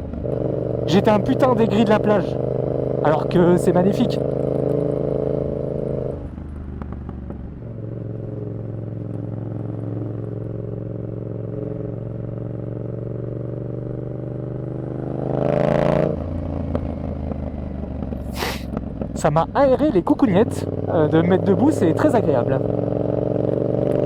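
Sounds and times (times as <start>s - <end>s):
motorcycle engine running: 0.0s - 15.2s, 16.2s - 24.0s.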